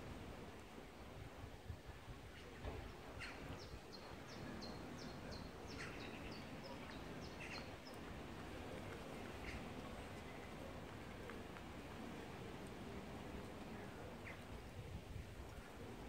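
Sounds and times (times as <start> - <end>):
low outdoor rumble: 0.0 - 16.0
songbird singing: 2.3 - 11.7, 12.4 - 14.6.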